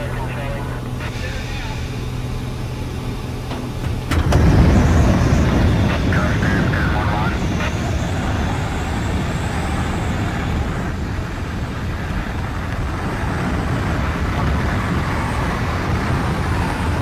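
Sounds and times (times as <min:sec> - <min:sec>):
airplane drone in flight: 0:00.0 - 0:17.0.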